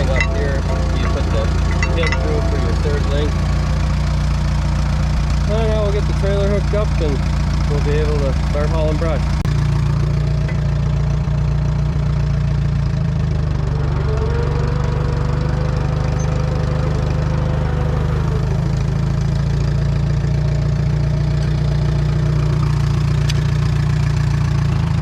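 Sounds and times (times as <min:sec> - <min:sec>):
faint whine: 0:00.0 - 0:03.7
tractor engine idling: 0:00.0 - 0:25.0.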